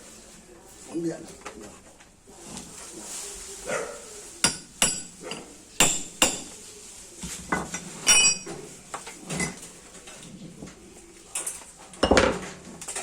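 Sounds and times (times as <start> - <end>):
metal tools knocking: 7.6 - 8.6
ringing metal clang: 8.1 - 8.5.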